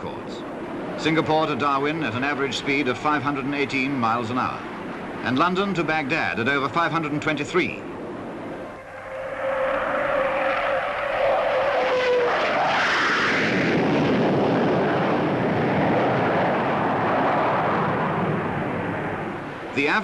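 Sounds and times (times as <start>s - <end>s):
jet aircraft passing: 7.7s - 20.0s.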